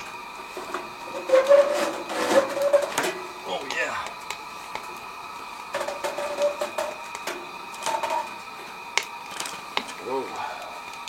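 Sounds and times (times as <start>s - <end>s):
metal pipe squeaking and scraping: 0.5s - 3.3s, 5.7s - 7.0s, 7.8s - 8.4s.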